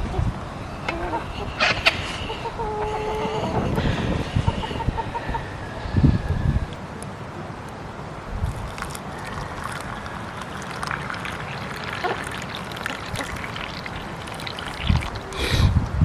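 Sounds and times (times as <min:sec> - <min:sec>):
rain falling: 0:08.4 - 0:15.4
water dripping: 0:08.4 - 0:15.4.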